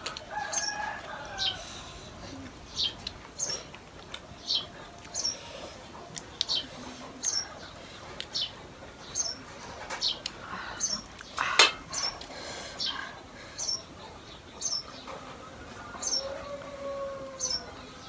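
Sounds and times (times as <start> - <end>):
bird chirping: 0.4 - 16.6.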